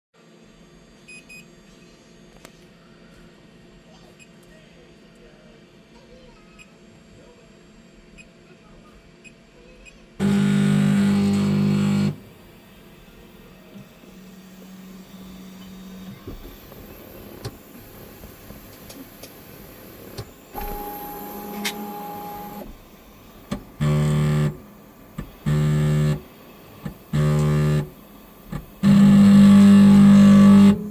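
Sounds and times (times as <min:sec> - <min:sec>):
printer grinding: 0:10.2 - 0:30.9
printer humming: 0:10.2 - 0:30.9.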